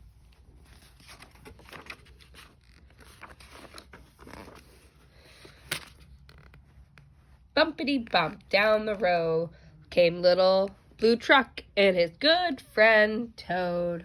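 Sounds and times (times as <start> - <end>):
book pages rustling: 0.0 - 9.2.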